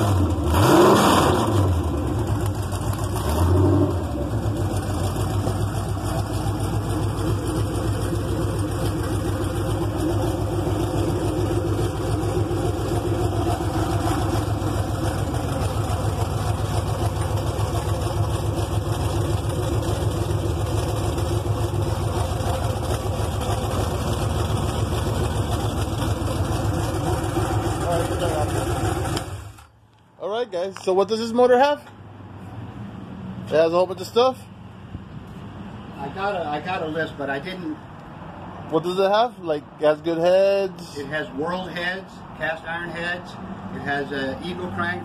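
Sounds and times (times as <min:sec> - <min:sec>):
car engine idling: 0:00.0 - 0:30.1.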